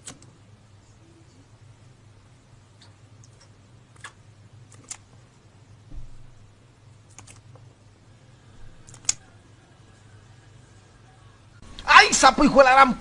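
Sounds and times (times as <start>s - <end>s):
low steady hum: 0.0s - 13.0s
dull low thump: 5.9s - 6.4s.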